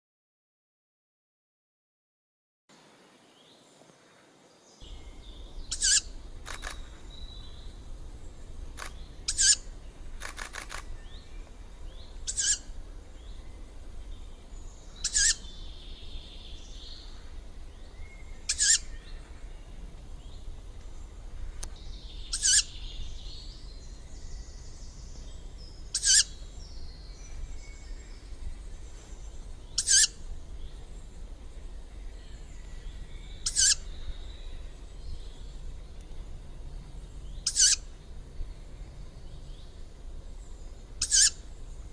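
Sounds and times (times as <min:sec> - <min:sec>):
young owl begging shriek: 0:05.7 - 0:06.8, 0:09.3 - 0:09.7, 0:12.2 - 0:12.7, 0:15.0 - 0:15.4, 0:18.5 - 0:18.9, 0:22.3 - 0:22.7, 0:25.9 - 0:26.3, 0:29.8 - 0:30.2, 0:33.4 - 0:33.9, 0:37.4 - 0:37.8, 0:41.0 - 0:41.4.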